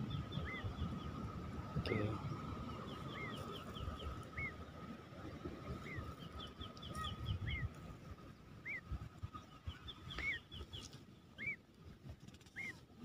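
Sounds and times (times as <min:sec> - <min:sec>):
small birds chirping: 0:00.0 - 0:01.2, 0:01.8 - 0:04.7, 0:05.8 - 0:07.8, 0:08.6 - 0:11.6, 0:12.2 - 0:12.9
low wind: 0:00.0 - 0:13.0.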